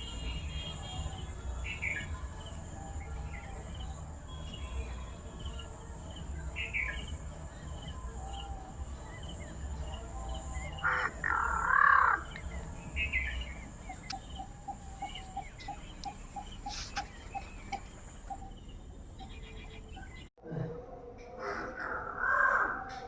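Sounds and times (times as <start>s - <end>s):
crow calling: 10.8s - 13.4s, 14.0s - 18.6s, 21.4s - 23.0s.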